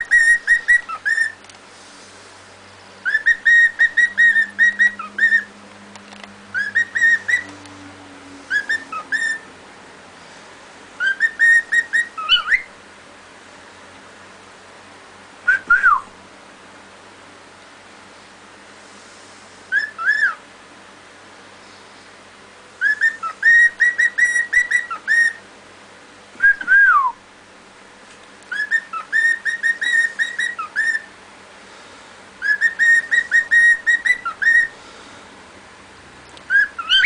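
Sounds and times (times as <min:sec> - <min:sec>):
cockatiel whistling: 0:00.0 - 0:01.4, 0:03.0 - 0:05.5, 0:06.5 - 0:07.5, 0:08.5 - 0:09.5, 0:11.0 - 0:12.7, 0:15.5 - 0:16.1, 0:19.7 - 0:20.4, 0:22.8 - 0:25.4, 0:26.4 - 0:27.2, 0:28.5 - 0:31.1, 0:32.4 - 0:34.8, 0:36.5 - 0:37.0.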